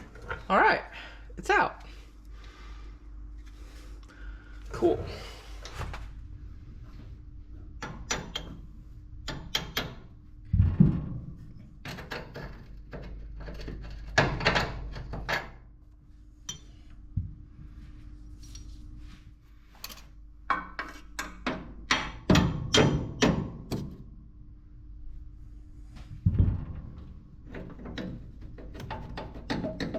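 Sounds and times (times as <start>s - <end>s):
faint steady hum: 0.0s - 22.8s, 23.5s - 29.9s
heavy thump: 10.5s - 11.3s.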